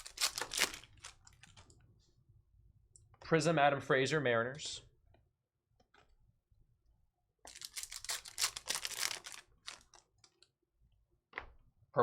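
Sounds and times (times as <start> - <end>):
packaging crinkling and rustling: 0.0 - 1.7, 7.5 - 10.5.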